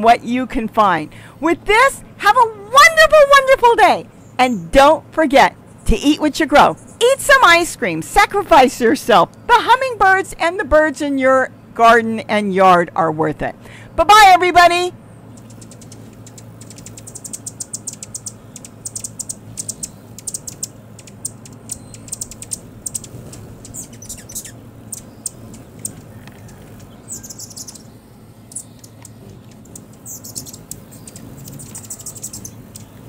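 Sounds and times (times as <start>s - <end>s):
high-pitched bird chirps: 15.3s - 33.0s.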